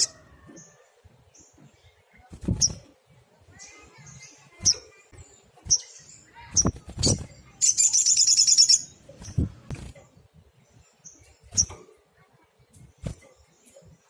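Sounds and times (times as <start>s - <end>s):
buzzy bird trill: 0.0s - 0.2s, 3.5s - 9.9s.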